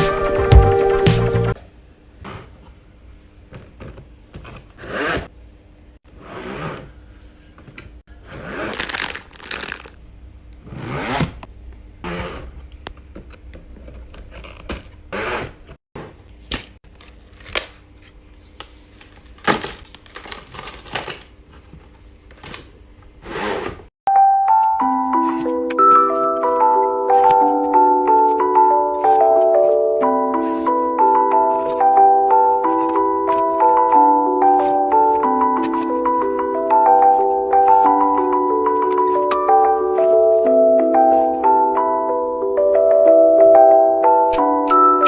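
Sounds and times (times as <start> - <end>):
packaging rustling and scraping: 8.4 - 10.0, 16.9 - 22.6, 26.8 - 36.6.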